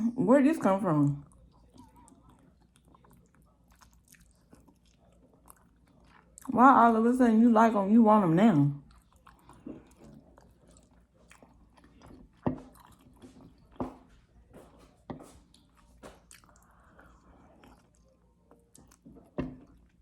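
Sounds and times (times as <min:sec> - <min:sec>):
wet chewing mouth smacks: 0:15.5 - 0:20.0.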